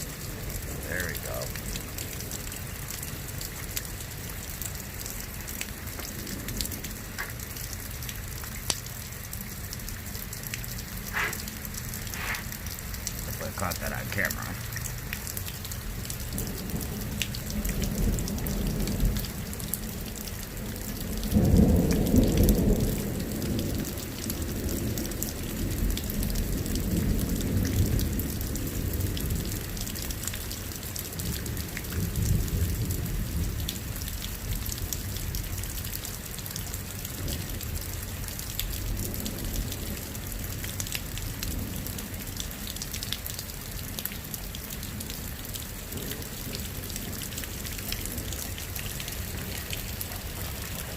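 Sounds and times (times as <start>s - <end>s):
raindrop patter: 0.0s - 50.9s
steady rain: 0.0s - 50.9s
rolling thunder: 16.3s - 29.6s.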